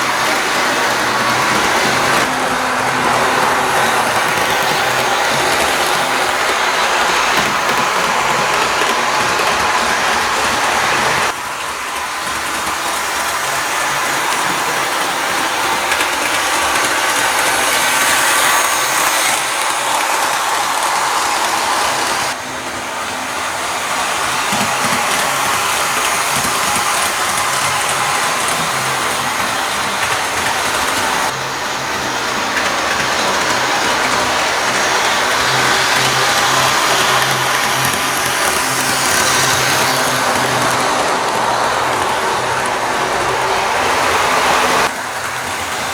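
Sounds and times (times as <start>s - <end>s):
model train motor whirring: 0.0s - 45.9s
wheels rattling on rails: 0.0s - 45.9s.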